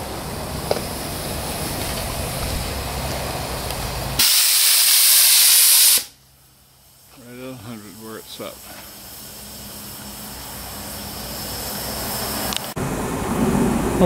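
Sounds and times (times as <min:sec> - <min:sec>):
steady rushing noise: 0:00.0 - 0:04.2, 0:07.0 - 0:14.0
safety valve steam hiss: 0:04.2 - 0:06.2, 0:07.9 - 0:12.7.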